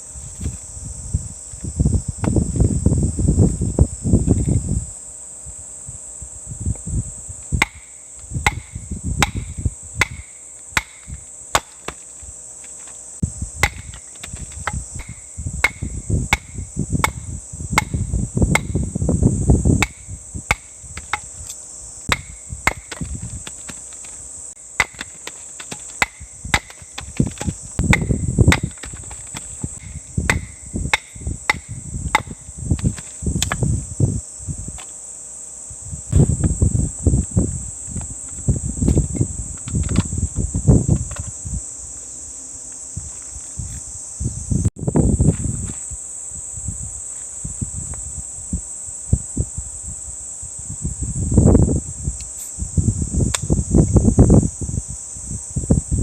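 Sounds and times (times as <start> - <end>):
insects droning: 0.0 - 56.0
sharp chopping knocks: 7.6 - 12.9, 13.6 - 18.8, 19.8 - 21.3, 22.1 - 24.2, 24.8 - 33.6.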